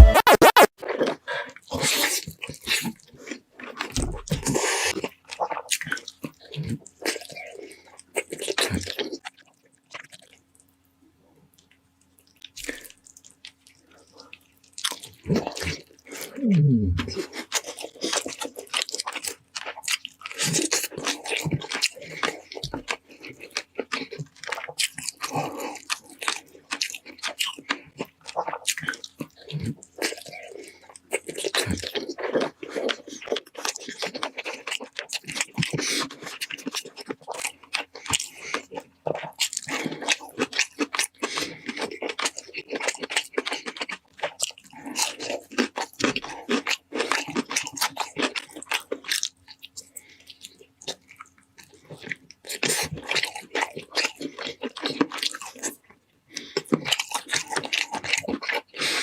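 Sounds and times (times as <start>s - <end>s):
crunching and wet chewing: 0.8s - 59.0s.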